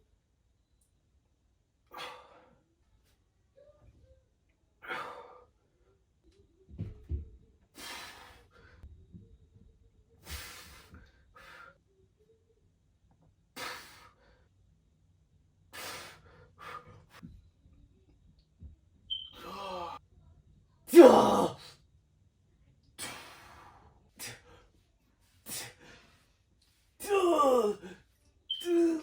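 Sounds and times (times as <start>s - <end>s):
man breathing hard: 15.7s - 17.2s.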